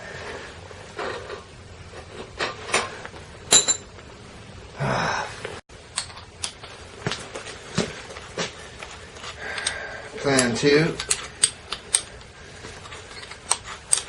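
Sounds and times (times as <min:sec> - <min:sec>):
hand tools knocking and clicking: 0:09.5 - 0:12.3.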